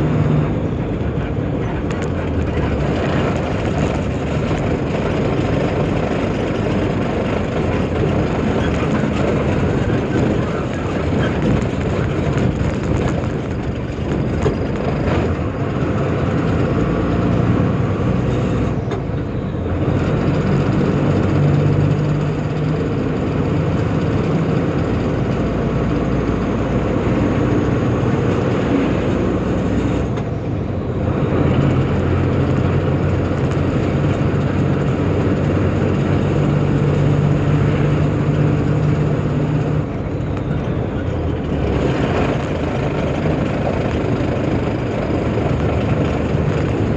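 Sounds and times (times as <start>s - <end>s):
road noise: 0.0s - 46.9s
truck diesel engine running: 0.0s - 46.9s.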